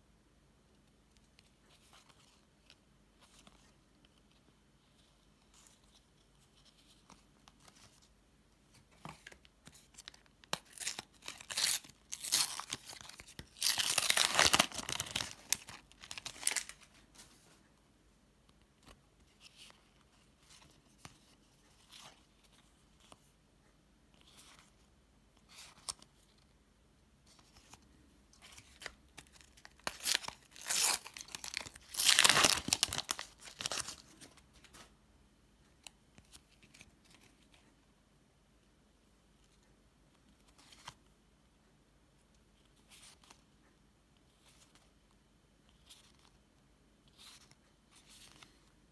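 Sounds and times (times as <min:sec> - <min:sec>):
packets being torn open: 0:10.5 - 0:16.8, 0:29.7 - 0:34.0
wrappers crinkling: 0:10.6 - 0:16.8, 0:28.8 - 0:34.1.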